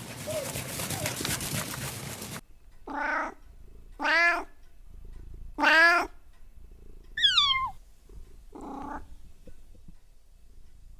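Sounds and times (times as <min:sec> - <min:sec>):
cat meowing: 0:02.9 - 0:03.4, 0:04.0 - 0:04.5, 0:05.6 - 0:06.1, 0:07.2 - 0:07.8.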